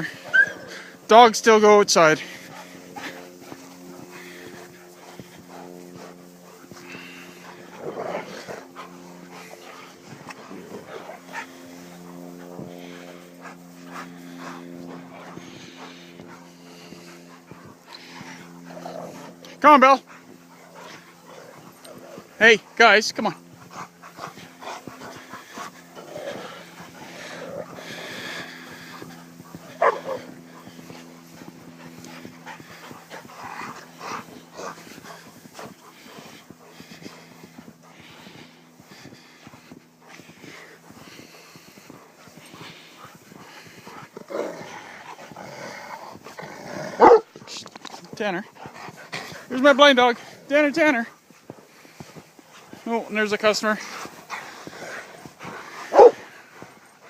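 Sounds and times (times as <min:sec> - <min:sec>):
dogs barking and yelping: 0:00.0 - 0:01.0, 0:23.4 - 0:38.7, 0:45.9 - 0:47.4, 0:54.0 - 0:57.0
steady low hum: 0:00.0 - 0:57.0
dog barking: 0:29.8 - 0:30.2, 0:47.0 - 0:47.3, 0:55.9 - 0:56.2.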